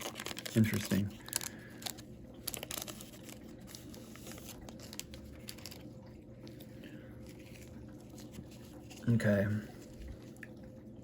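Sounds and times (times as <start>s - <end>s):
foil wrapper rustling: 0.0s - 6.0s.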